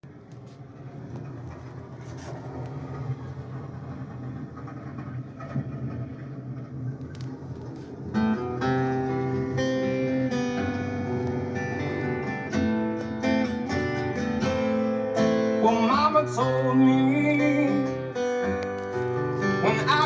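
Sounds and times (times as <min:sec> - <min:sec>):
low steady rumble: 0:00.0 - 0:20.0
picked acoustic guitar: 0:07.8 - 0:20.0.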